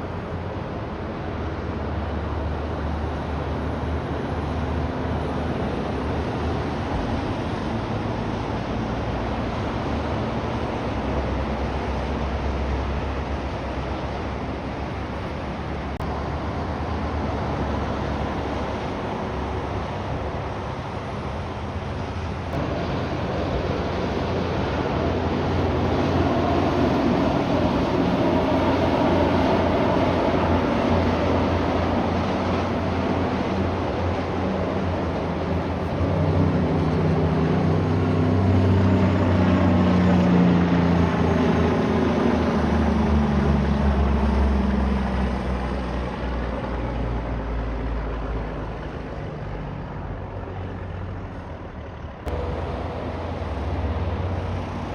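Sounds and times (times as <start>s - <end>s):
heavy trucks passing: 0.0s - 54.9s
deep truck engine note: 50.9s - 54.9s.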